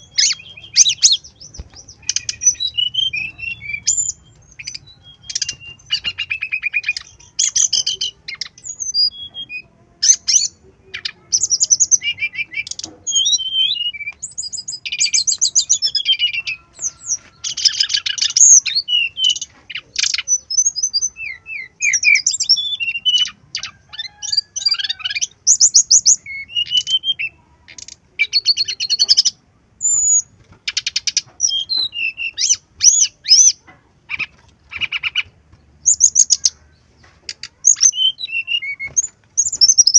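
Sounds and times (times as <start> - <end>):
bird singing high chirps and trills: 0.0 - 39.9.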